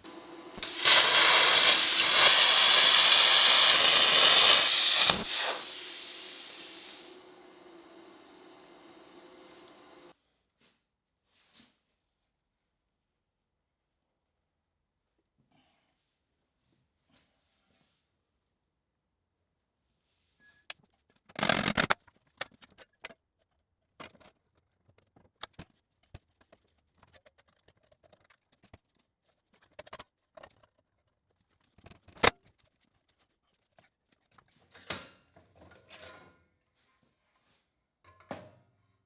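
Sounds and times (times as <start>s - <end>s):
loud rough burst: 0.1s - 10.1s.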